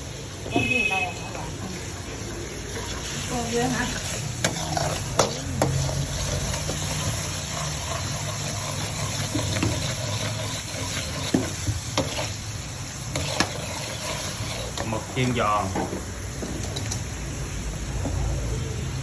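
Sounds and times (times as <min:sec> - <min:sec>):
squid sizzling in a pan: 0:00.0 - 0:19.0.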